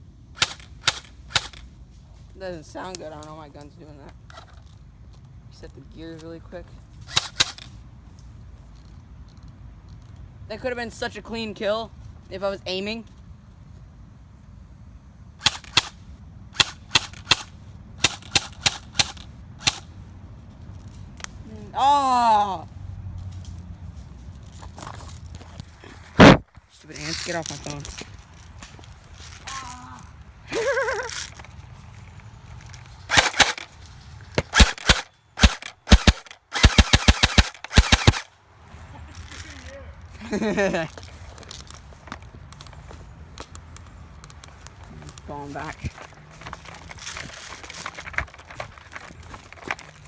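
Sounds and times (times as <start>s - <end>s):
airsoft rifle shots: 0.4s - 1.7s, 7.1s - 7.7s, 15.4s - 16.0s, 16.6s - 19.9s, 26.2s - 26.4s, 33.1s - 38.3s.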